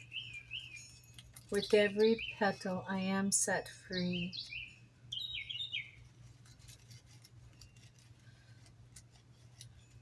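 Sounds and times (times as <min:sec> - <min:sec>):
bird chirping: 0:00.0 - 0:06.6
low steady hum: 0:00.0 - 0:10.0.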